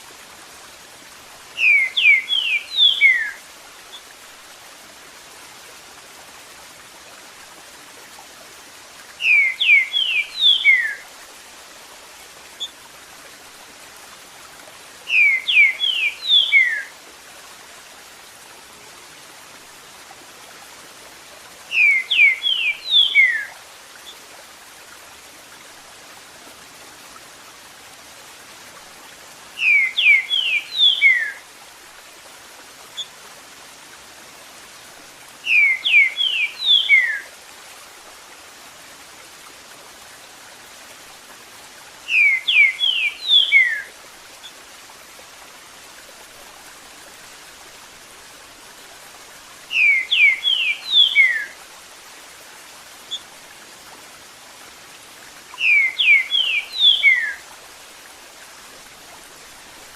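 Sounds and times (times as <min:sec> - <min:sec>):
running water hiss: 0:00.0 - 0:59.9
bird whistling song: 0:01.6 - 0:03.4, 0:09.2 - 0:11.0, 0:15.1 - 0:16.9, 0:21.7 - 0:23.5, 0:29.6 - 0:31.4, 0:35.5 - 0:37.3, 0:42.1 - 0:43.9, 0:49.7 - 0:51.6, 0:55.6 - 0:57.4.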